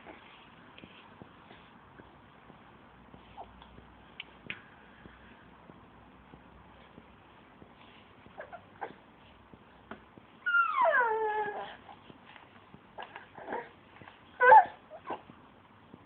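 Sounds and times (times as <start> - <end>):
dog whining: 10.4 - 12.0, 13.0 - 13.8, 14.4 - 15.3.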